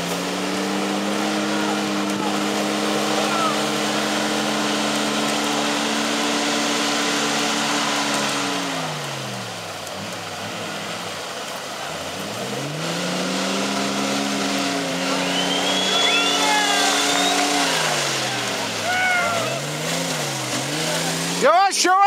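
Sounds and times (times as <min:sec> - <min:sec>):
off-road vehicle engine revving: 0:00.0 - 0:22.0.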